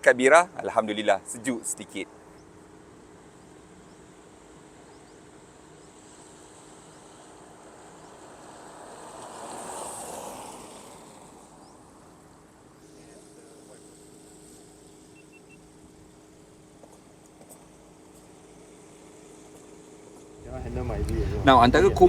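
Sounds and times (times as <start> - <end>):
faint background hum: 0.0 - 22.0
vehicle passing by: 6.3 - 13.9, 20.4 - 22.0.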